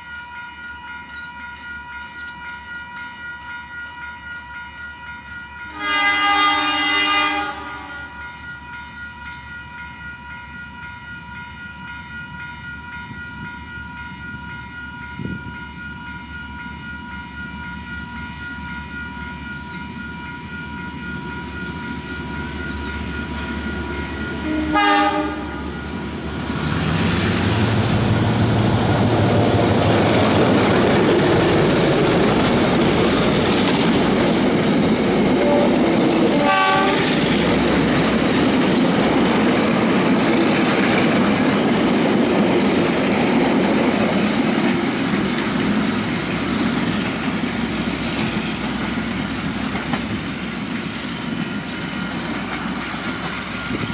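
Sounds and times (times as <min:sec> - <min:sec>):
train engine hum: 0:00.0 - 0:53.9
train wheels rumbling on rails: 0:00.0 - 0:53.9
locomotive horn blast: 0:05.7 - 0:08.2, 0:24.4 - 0:25.8, 0:35.4 - 0:37.4.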